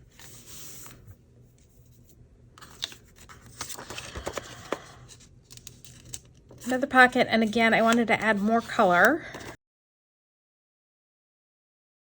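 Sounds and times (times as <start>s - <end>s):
paper rustling: 2.6s - 9.6s.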